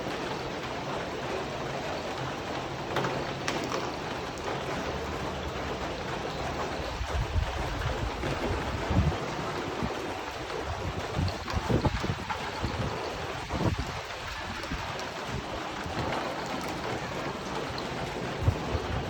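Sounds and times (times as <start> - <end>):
rain on a tin roof: 0.0 - 19.0.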